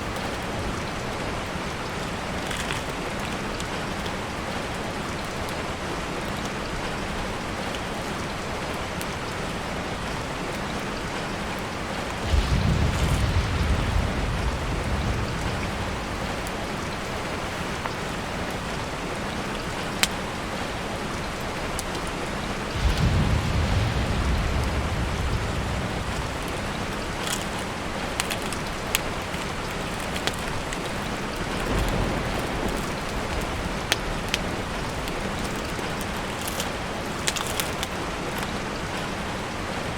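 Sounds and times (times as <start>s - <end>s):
rain on a tarp: 0.0s - 39.9s
low rumble: 11.8s - 18.4s, 22.6s - 36.4s.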